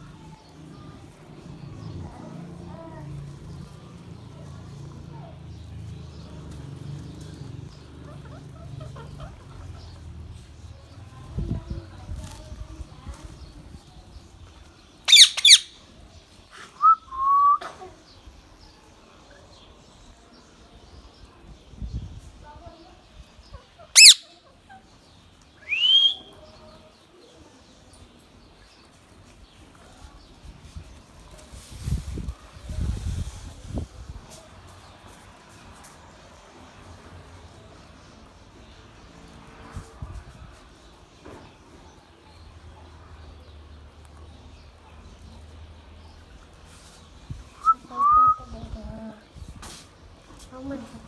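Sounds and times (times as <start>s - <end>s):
parakeet rising whistle: 15.1s - 15.6s, 24.0s - 24.2s, 25.7s - 26.3s
parrot chirping and squeaking: 15.1s - 15.8s, 24.0s - 24.3s, 25.7s - 26.2s.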